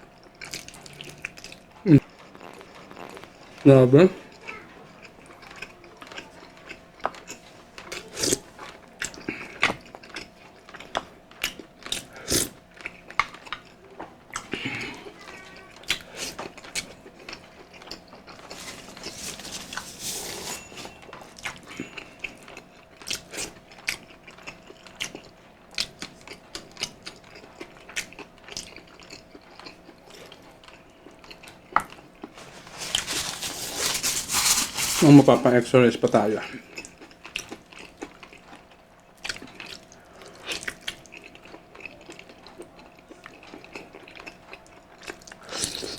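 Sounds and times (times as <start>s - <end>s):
faint steady hum: 0.0s - 45.9s
chewing and mouth smacks: 0.3s - 3.6s, 21.4s - 32.4s, 36.7s - 45.9s.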